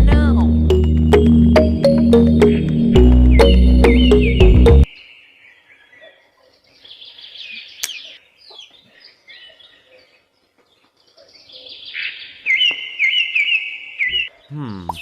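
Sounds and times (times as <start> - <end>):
birds chirping faintly: 0.7 - 15.0
sharp click: 7.8 - 8.0.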